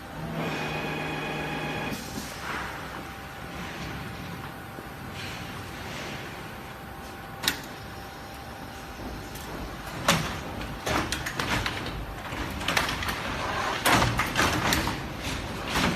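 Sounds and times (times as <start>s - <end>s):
quilting machine humming: 0.0s - 2.1s.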